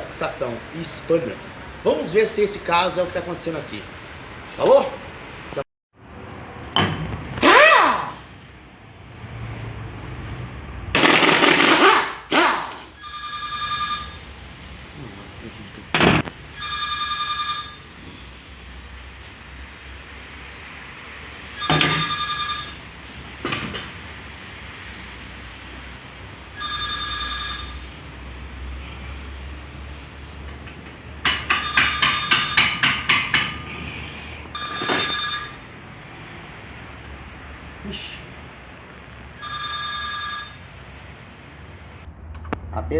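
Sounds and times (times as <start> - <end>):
air wrench whining: 6.9 - 8.3, 11.0 - 13.0
air wrench rapid hammering: 7.4 - 8.3, 11.0 - 12.9, 31.2 - 33.7.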